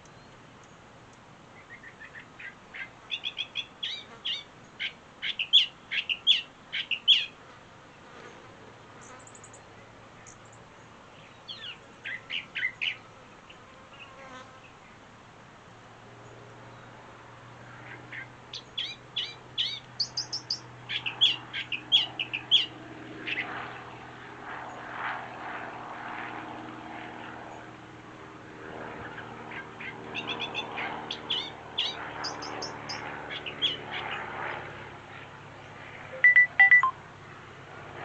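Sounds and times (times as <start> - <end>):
birds chirping and singing: 18.6 - 22.7, 30.2 - 34.2.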